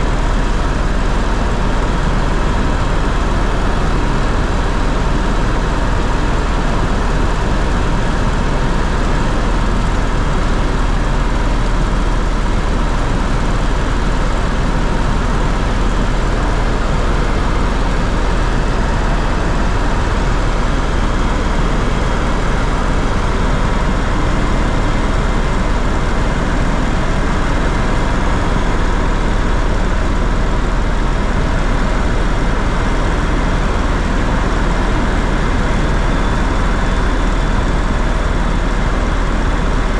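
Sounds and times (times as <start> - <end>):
aircraft engine drone in cabin: 0.0 - 39.9
faint steady whine: 0.0 - 39.9.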